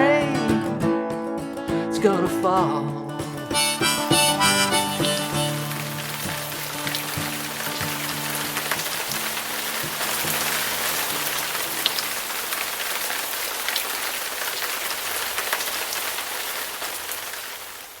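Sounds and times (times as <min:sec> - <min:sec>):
held music chord: 0:03.6 - 0:08.0
steady rain hissing: 0:04.8 - 0:18.0
single raindrops ticking: 0:05.5 - 0:17.9.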